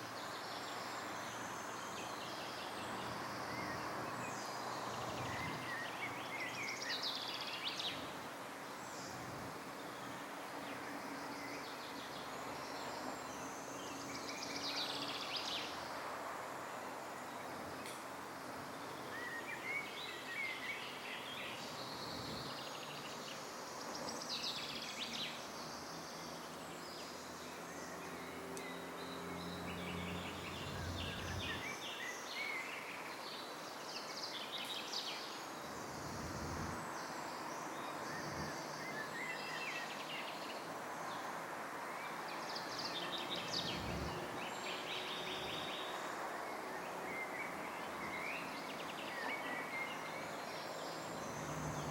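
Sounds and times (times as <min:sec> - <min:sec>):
outdoor background hiss: 0:00.0 - 0:51.9
birds chirping and trilling: 0:19.2 - 0:23.4, 0:26.9 - 0:32.7, 0:42.7 - 0:45.9.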